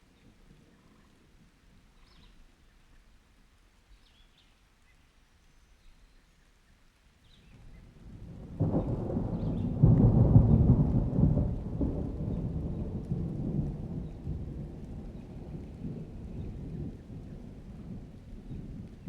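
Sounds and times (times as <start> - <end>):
thunder rumbling: 7.9 - 19.0.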